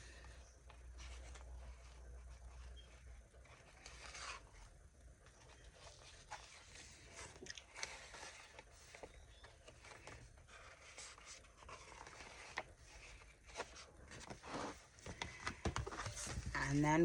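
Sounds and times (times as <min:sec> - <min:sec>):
paper sheets rustling: 0:05.4 - 0:17.0.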